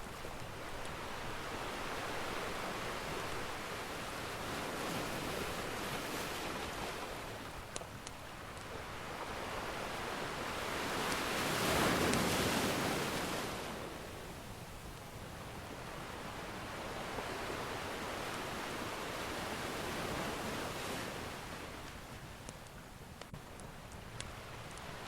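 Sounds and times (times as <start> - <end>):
fireplace fire crackling: 0.0 - 13.2, 21.7 - 25.0
ocean waves breaking: 0.0 - 22.5.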